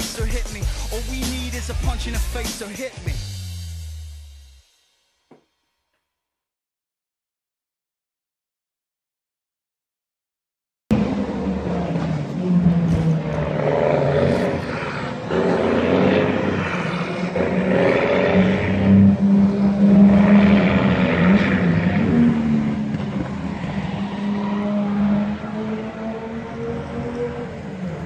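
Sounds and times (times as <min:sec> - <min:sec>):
heavy truck engines running: 0:00.0 - 0:03.0, 0:10.9 - 0:23.6.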